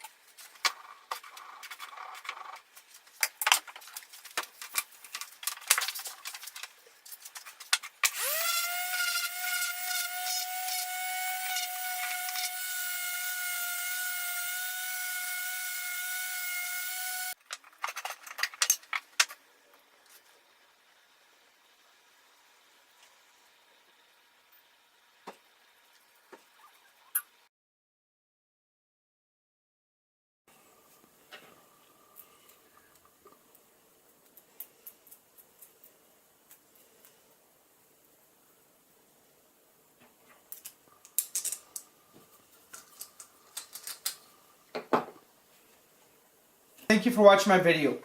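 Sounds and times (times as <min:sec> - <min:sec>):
power tool motor whining: 0:08.0 - 0:17.4.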